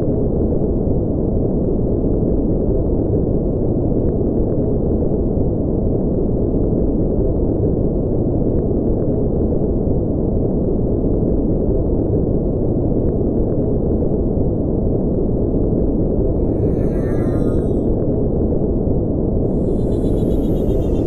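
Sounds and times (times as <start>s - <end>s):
deep synthetic drone: 16.0s - 18.3s, 19.4s - 21.0s.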